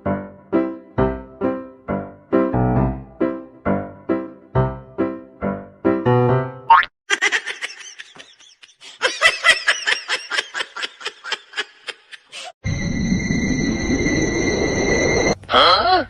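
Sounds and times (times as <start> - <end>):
high-pitched laughter: 7.1 - 12.6
thin high whine: 12.6 - 15.4.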